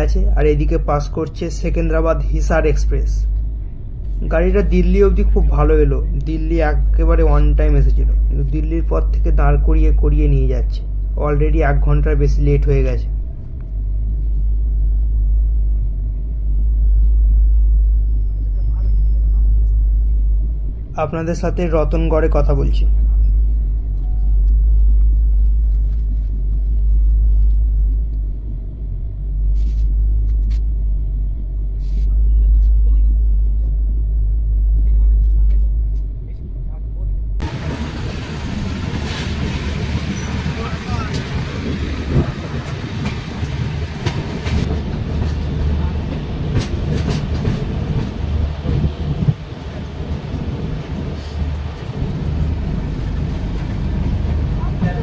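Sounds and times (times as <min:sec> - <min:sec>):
train coach rumble: 0:00.0 - 0:55.0
wheels clicking over rail joints: 0:37.4 - 0:55.0.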